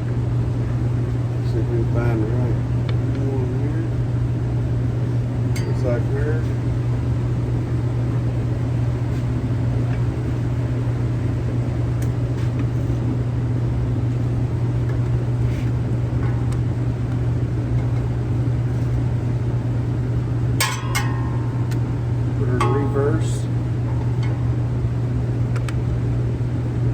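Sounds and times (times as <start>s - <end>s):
metallic clank: 20.6s - 24.9s.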